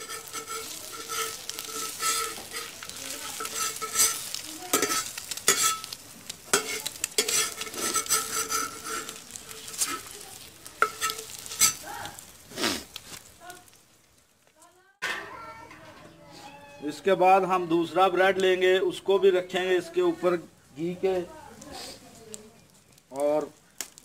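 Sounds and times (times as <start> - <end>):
metal spatula scraping a pan: 0.0 - 13.3
bread frying and sizzling: 0.0 - 24.0.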